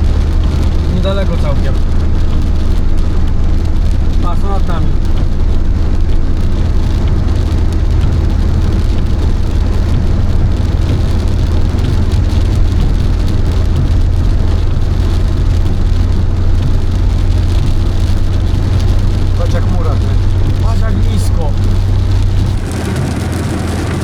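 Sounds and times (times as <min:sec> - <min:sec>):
rain hitting car: 0:00.0 - 0:24.0
road and engine drone: 0:00.0 - 0:24.0.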